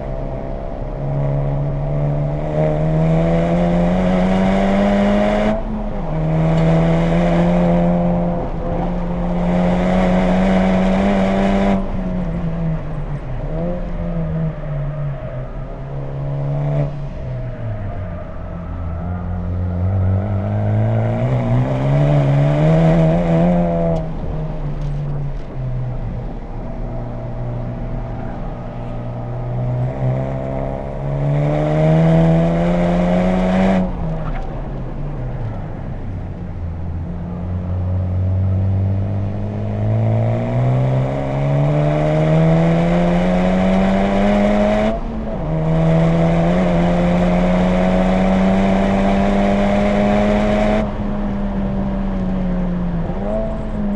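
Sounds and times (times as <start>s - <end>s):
car engine accelerating and shifting: 0.0s - 53.9s.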